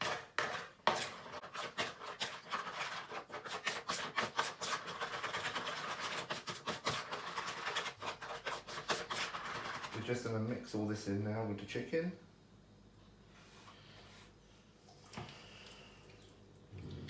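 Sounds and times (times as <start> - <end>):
spoon scraping a bowl: 0.0 - 10.1.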